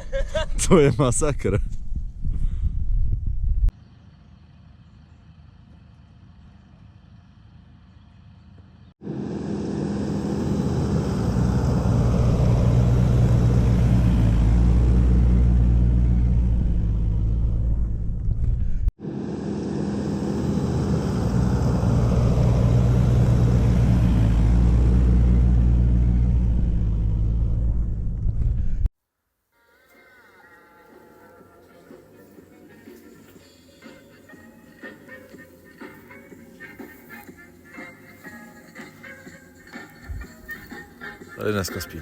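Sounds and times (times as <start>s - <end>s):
car engine droning under load: 3.6s - 28.9s.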